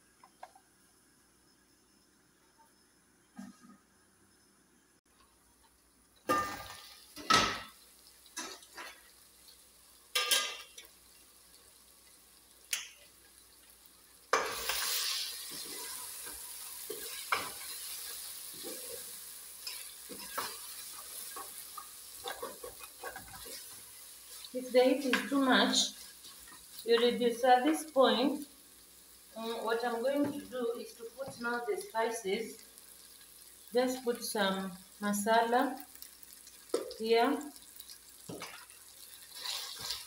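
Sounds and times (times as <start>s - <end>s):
onions sizzling in a pot: 5.1s - 40.0s
pot and lid clanking: 10.1s - 10.8s
wooden spoon stirring and scraping: 14.4s - 27.2s, 39.2s - 40.0s.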